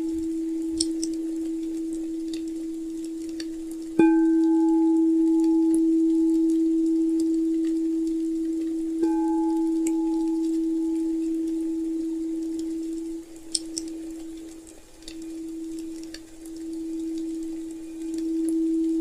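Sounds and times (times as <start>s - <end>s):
faint fire crackling: 0.0s - 19.0s
singing bowl ringing: 4.0s - 19.0s.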